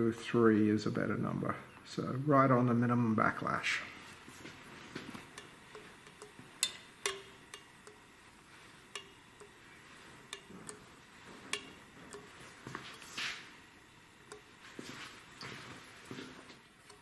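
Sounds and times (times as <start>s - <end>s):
metallic clicks and taps: 5.0s - 17.0s.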